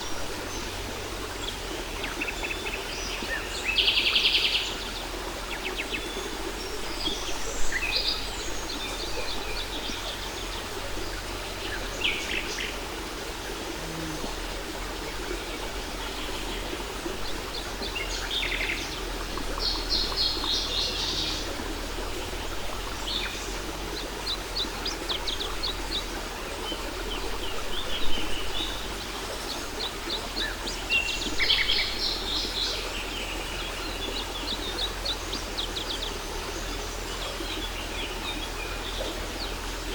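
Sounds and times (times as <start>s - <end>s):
songbirds chirping and trilling: 0.4s - 39.9s.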